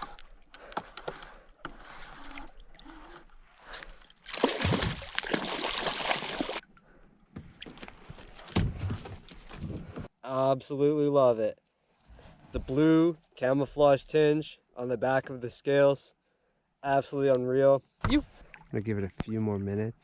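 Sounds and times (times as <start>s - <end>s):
water splashing against kayak: 0.0s - 6.6s.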